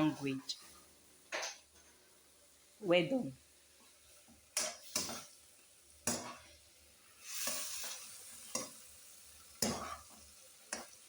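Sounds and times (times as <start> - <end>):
food sizzling: 0.0 - 11.0
spatula scraping a pan: 3.8 - 11.0.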